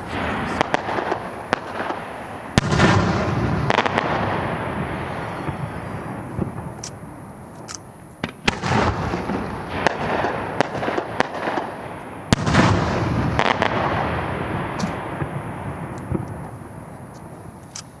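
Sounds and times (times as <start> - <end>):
rumbling echo: 0.0 - 6.4
fireworks bursting with bangs: 0.0 - 18.0.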